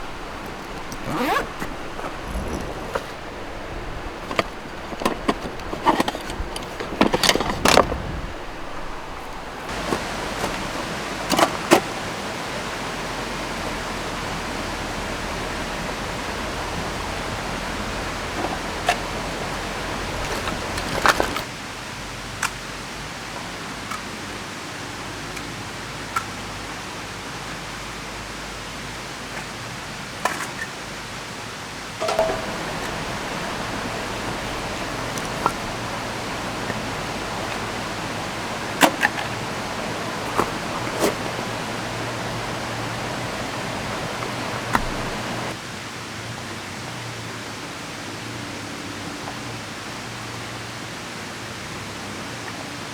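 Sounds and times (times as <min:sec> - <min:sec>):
river rushing: 0:00.0 - 0:21.5, 0:32.0 - 0:45.6
rain: 0:00.0 - 0:52.9
short clicks and knocks: 0:32.0 - 0:35.8.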